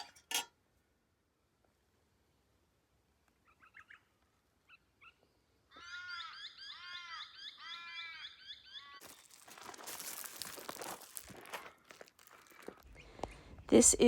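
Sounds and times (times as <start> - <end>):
loud repeated bird calls: 5.0 - 9.0.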